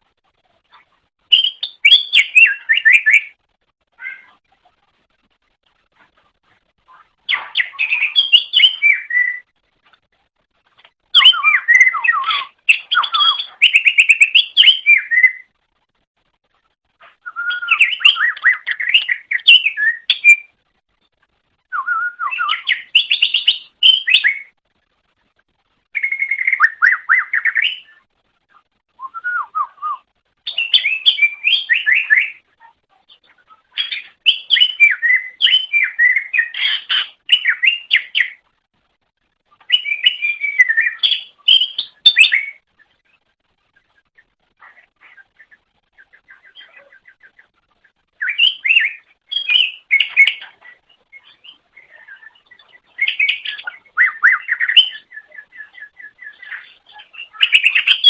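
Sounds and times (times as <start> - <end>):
bird singing whistles and chirps: 1.3 - 3.4, 7.3 - 9.5, 11.1 - 15.5, 17.2 - 20.6, 21.6 - 24.6, 25.9 - 28.0, 28.9 - 32.5, 33.8 - 38.4, 39.6 - 43.0, 48.2 - 58.0.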